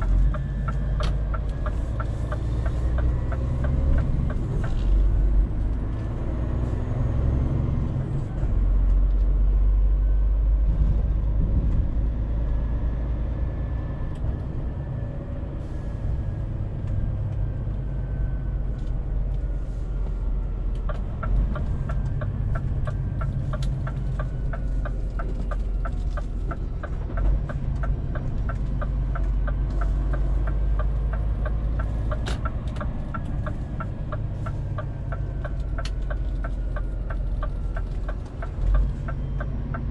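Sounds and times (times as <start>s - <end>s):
turn signal ticking: 0.0s - 8.2s, 16.7s - 39.9s
diesel truck engine running: 0.0s - 39.9s.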